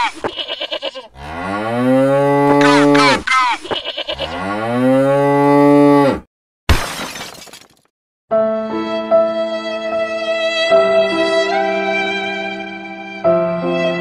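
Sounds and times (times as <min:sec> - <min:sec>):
cow mooing: 0:01.1 - 0:03.2, 0:03.9 - 0:06.3.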